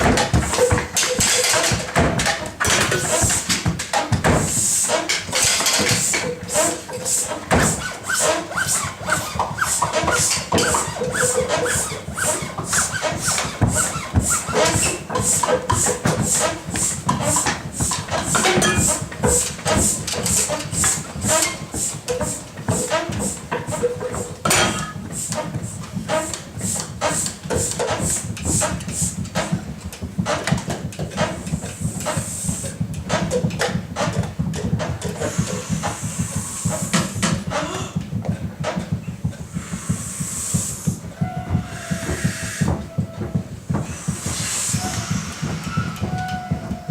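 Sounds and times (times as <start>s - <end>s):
feet stamping on hard floor: 0.0s - 4.7s, 9.1s - 46.9s
rhythmic hissing pulse: 35.2s - 37.3s, 39.4s - 46.9s.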